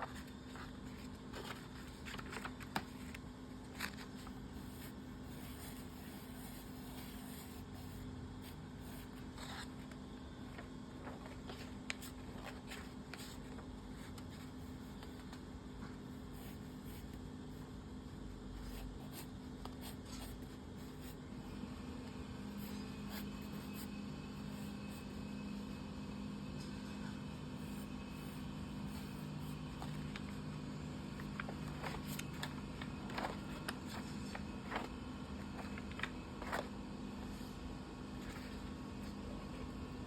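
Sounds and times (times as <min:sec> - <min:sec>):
steady low hum: 0:00.0 - 0:40.0
pencil scratching drawing strokes: 0:04.3 - 0:09.8, 0:27.6 - 0:30.3.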